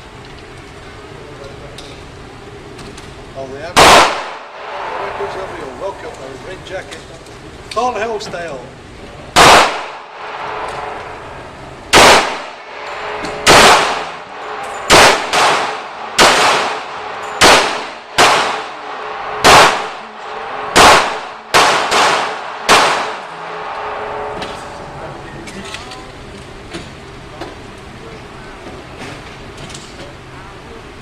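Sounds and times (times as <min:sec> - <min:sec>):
gunshots with ringing echo: 0:03.8 - 0:05.5, 0:09.4 - 0:24.7.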